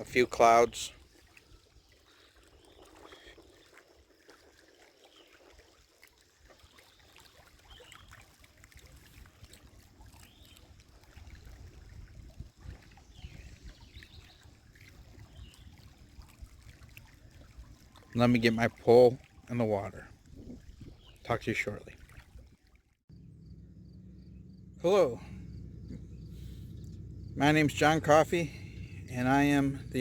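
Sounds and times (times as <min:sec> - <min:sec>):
small waves lapping at shore: 0:00.0 - 0:23.0
wind rumbling on microphone: 0:11.3 - 0:18.0, 0:20.0 - 0:21.2
faint bird chirps: 0:23.4 - 0:27.5.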